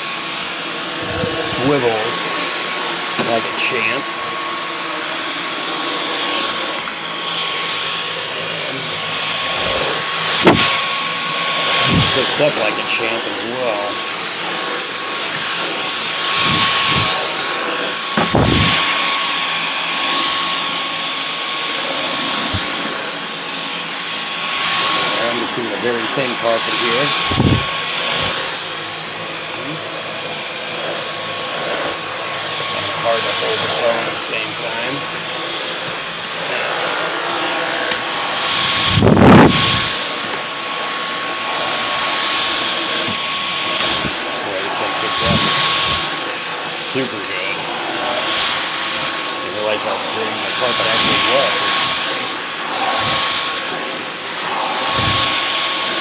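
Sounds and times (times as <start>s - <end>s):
vacuum cleaner on carpet: 0.0s - 56.0s
thump: 10.4s - 10.7s.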